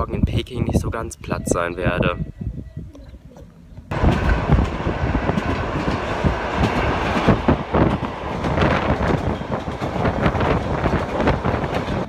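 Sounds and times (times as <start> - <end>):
train carriage rumble: 3.6 - 12.0.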